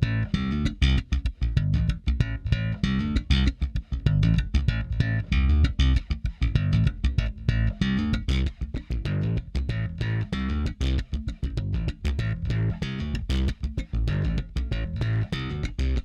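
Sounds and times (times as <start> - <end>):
electric bass guitar line: 0.0 - 16.0.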